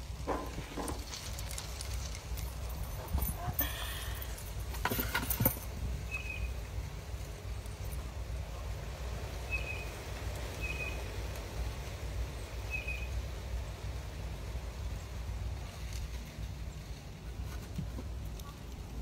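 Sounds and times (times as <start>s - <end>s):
low outdoor rumble: 0.0s - 19.0s
small bird chirping: 6.0s - 6.6s, 9.4s - 10.0s, 10.6s - 11.1s, 12.7s - 13.2s.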